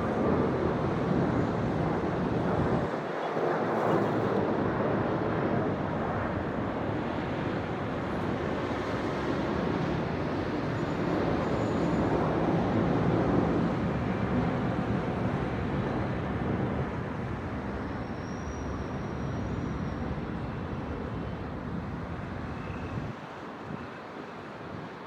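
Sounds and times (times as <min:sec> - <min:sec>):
faint high whistle: 0:17.8 - 0:20.7, 0:22.5 - 0:23.1.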